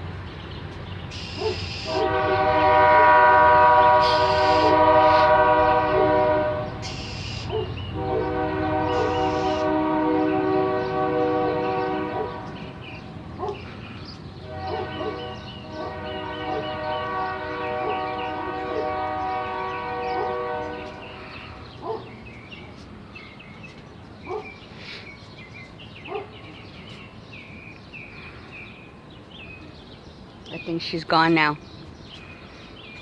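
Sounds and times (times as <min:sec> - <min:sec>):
bird chirping rapidly: 0:00.9 - 0:02.0, 0:06.8 - 0:08.0, 0:08.9 - 0:09.7
train horn chord: 0:01.2 - 0:13.0, 0:14.4 - 0:21.7.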